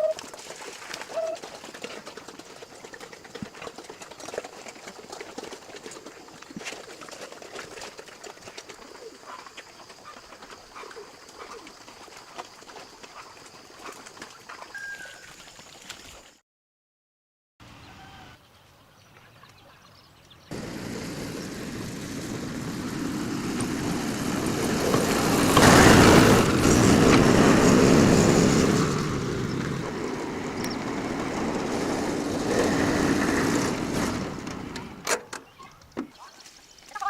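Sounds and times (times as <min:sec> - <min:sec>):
vehicle passing by: 0:20.5 - 0:35.1.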